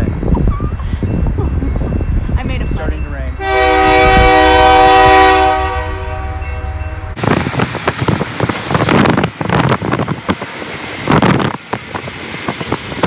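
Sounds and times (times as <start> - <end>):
train horn: 3.4 - 7.2
rough rushing noise: 7.1 - 13.0.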